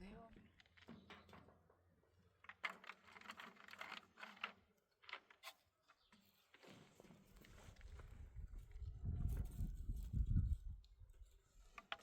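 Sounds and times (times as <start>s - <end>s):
clicks and rustles of handling: 2.4s - 8.0s, 11.6s - 12.0s.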